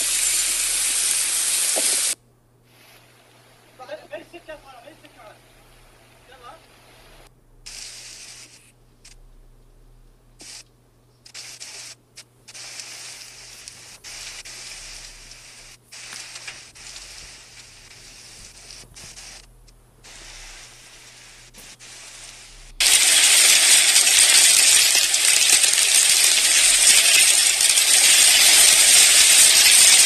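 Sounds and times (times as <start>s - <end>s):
heavy rain hissing: 0.0s - 3.2s, 3.8s - 8.7s, 11.3s - 30.0s.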